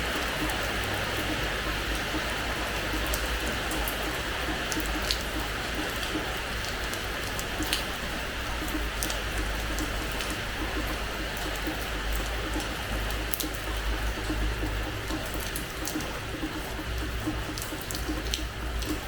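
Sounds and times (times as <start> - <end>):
steady rain hiss: 0.0 - 19.0
water drips: 0.0 - 19.0.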